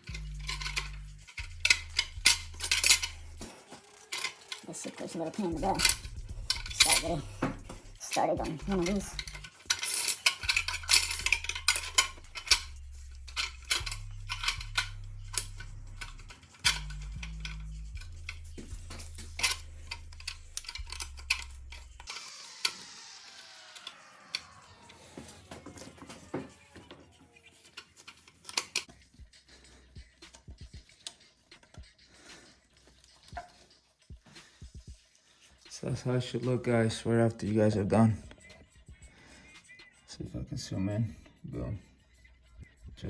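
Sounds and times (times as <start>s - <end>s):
background music with bass line: 0.0s - 3.8s, 4.7s - 27.0s, 28.8s - 43.0s
metal parts clicking and clinking: 0.0s - 23.0s, 23.7s - 28.9s.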